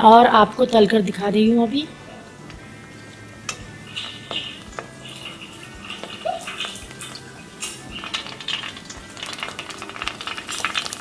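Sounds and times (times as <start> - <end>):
deep-frying crackling sizzle: 0.0 - 11.0
metal spoon tapping pan: 3.4 - 11.0.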